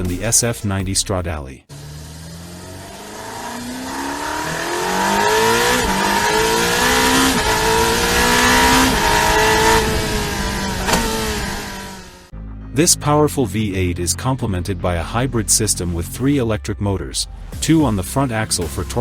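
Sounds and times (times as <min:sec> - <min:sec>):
car engine accelerating hard: 0:01.7 - 0:12.3.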